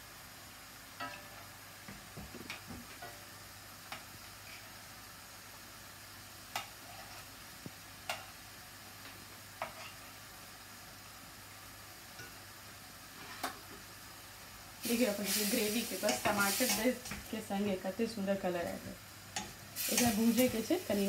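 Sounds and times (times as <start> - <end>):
faint frying sizzle: 0.0 - 21.0
metal spoon clinking on pan: 1.0 - 1.3.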